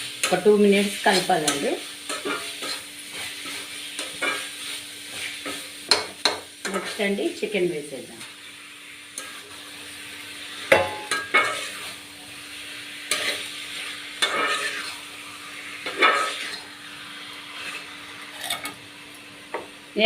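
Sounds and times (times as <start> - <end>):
chicken sizzling in a pan: 0.0 - 20.0
spatula scraping a pan: 0.1 - 7.2, 9.1 - 9.6, 10.4 - 12.0, 13.0 - 16.8, 17.4 - 18.8.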